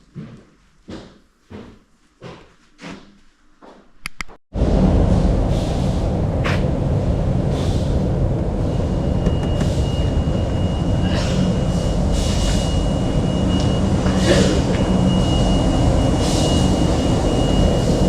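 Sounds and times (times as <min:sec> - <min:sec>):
loud low rumble: 0:04.6 - 0:18.0.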